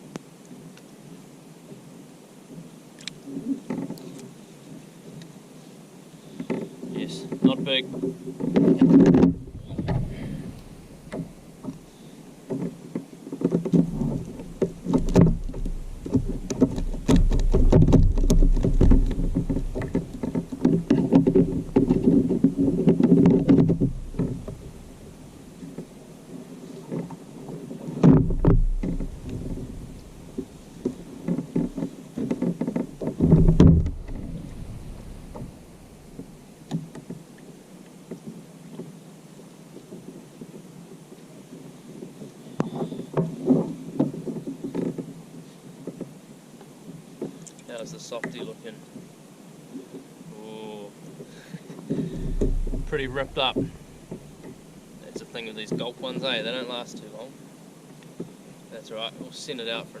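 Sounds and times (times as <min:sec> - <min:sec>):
gear knocking against plastic kayak: 0:06.4 - 0:11.9, 0:12.5 - 0:26.0, 0:26.8 - 0:37.5, 0:42.0 - 0:45.2, 0:51.1 - 0:56.8
low rumble: 0:28.2 - 0:30.8, 0:33.4 - 0:36.2, 0:52.2 - 0:54.4.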